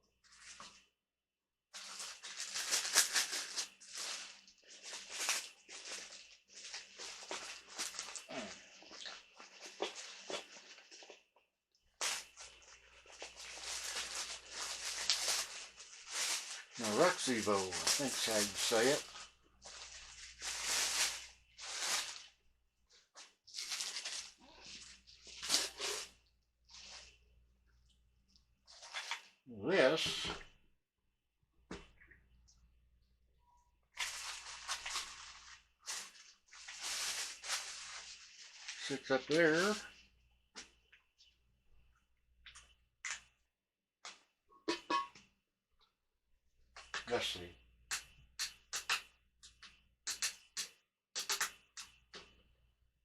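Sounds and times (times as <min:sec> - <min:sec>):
packaging rustling and rubbing: 0:01.8 - 0:11.2, 0:12.0 - 0:27.2, 0:34.0 - 0:39.8.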